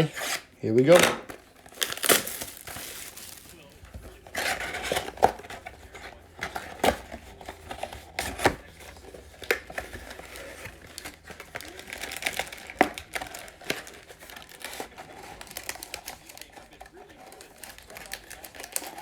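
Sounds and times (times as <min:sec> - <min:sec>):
plastic wrapping crinkling and tearing: 0:00.0 - 0:19.0
packaging knocks and clicks: 0:00.9 - 0:19.0.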